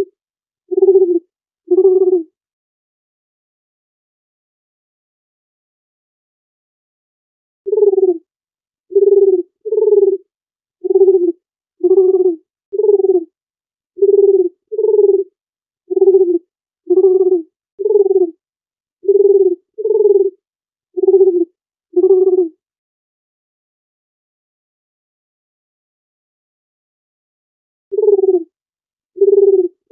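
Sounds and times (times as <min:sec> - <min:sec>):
dove cooing: 0:00.7 - 0:02.3, 0:07.7 - 0:08.2, 0:08.9 - 0:10.2, 0:10.8 - 0:13.3, 0:14.0 - 0:15.3, 0:15.9 - 0:18.4, 0:19.0 - 0:20.4, 0:21.0 - 0:22.5, 0:27.9 - 0:28.5, 0:29.2 - 0:29.9.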